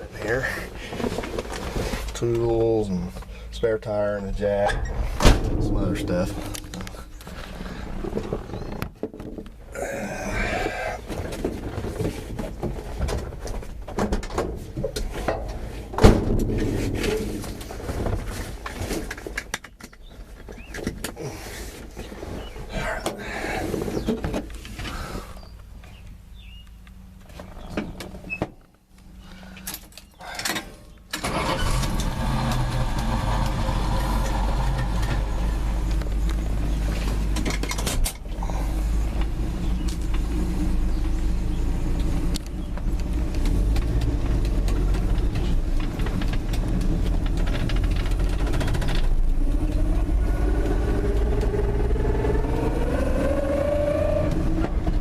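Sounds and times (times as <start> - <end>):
clunk: 4.6 - 9.6, 12.9 - 21.2
truck engine running: 31.2 - 55.0.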